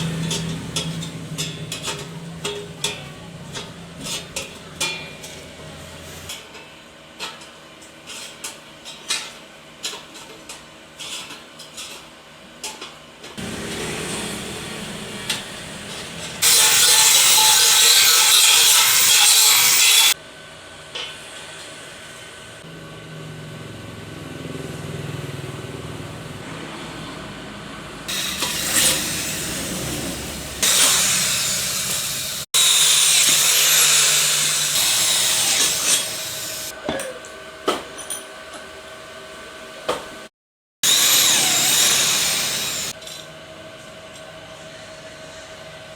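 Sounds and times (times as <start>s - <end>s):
power tool bursts: 16.4s - 20.2s, 28.1s - 36.7s, 40.8s - 43.0s.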